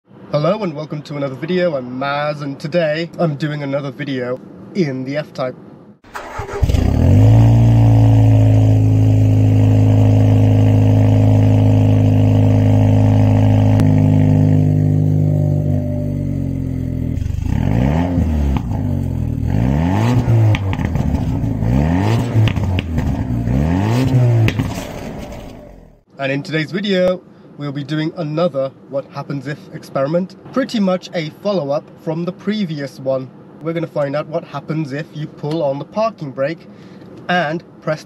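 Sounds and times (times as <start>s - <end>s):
car engine starting and idling: 6.0s - 26.1s
car engine revving: 6.1s - 26.0s.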